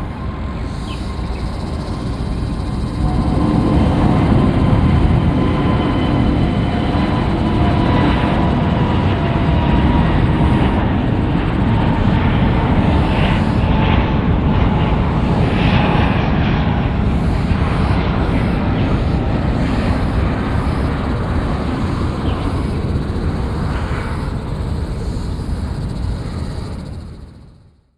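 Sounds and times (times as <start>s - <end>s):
jet engines at takeoff power: 0.0s - 27.9s.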